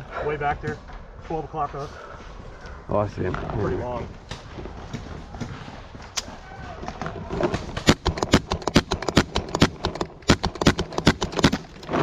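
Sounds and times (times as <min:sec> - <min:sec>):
paintball markers firing: 0:07.7 - 0:11.9.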